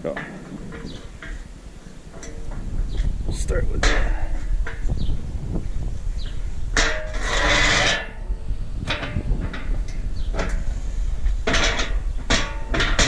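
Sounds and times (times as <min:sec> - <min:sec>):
metal ramp squealing scrape: 0:06.8 - 0:13.0.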